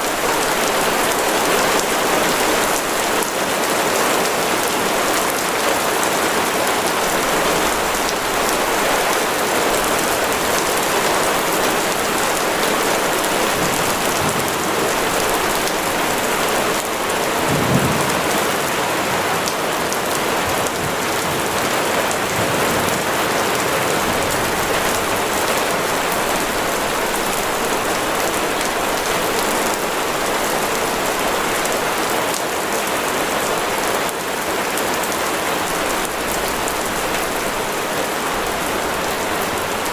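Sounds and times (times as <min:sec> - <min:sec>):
heavy rain: 0:00.0 - 0:39.9
low rumble of thunder: 0:12.7 - 0:27.2.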